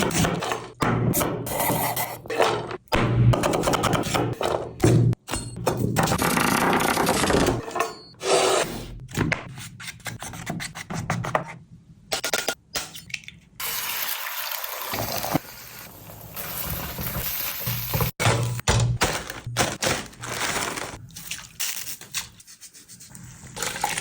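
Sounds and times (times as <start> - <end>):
rubbing and scraping in kitchen: 1.4 - 2.8, 14.9 - 24.0.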